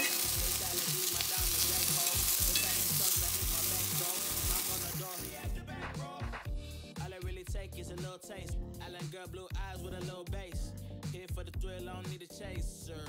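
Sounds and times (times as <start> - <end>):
mushrooms sizzling in skillet: 0.0 - 5.5
background music with steady beat: 0.0 - 13.0.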